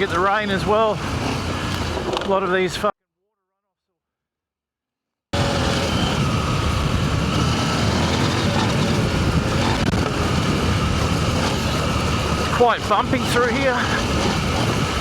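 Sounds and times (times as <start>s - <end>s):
motorcycle engine: 0.0s - 2.2s, 5.3s - 15.0s
wind noise: 5.4s - 15.0s.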